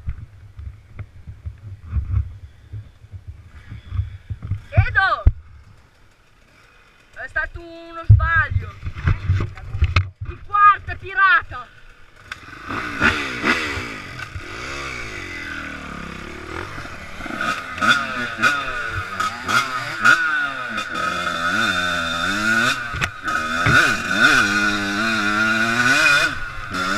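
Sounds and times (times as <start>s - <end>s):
dirt bike engine revving: 10.6s - 26.9s.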